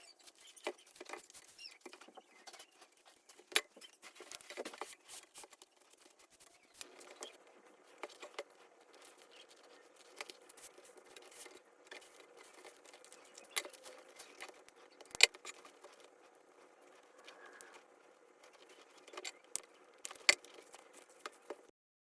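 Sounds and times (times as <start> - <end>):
hands handling small objects: 0.0 - 21.7.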